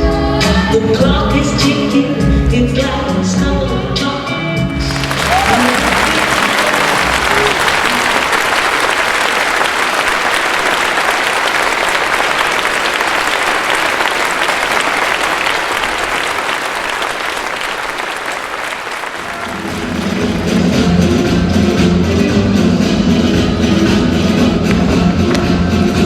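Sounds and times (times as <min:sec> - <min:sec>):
music: 0:00.0 - 0:09.2, 0:19.2 - 0:26.0
audience applauding: 0:04.8 - 0:21.5.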